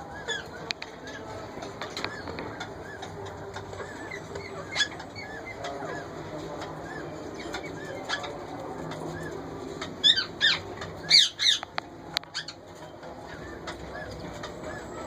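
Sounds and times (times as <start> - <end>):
parakeets squawking: 0.0 - 15.0.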